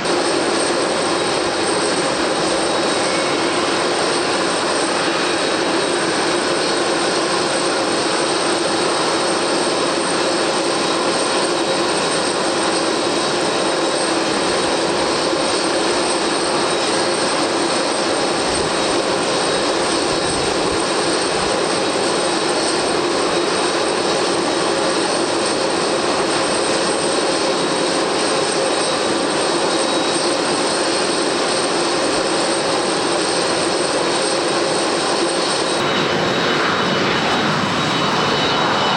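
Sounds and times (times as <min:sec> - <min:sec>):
high whine: 0:00.0 - 0:08.0, 0:35.2 - 0:38.9
jet engines running: 0:00.0 - 0:38.9.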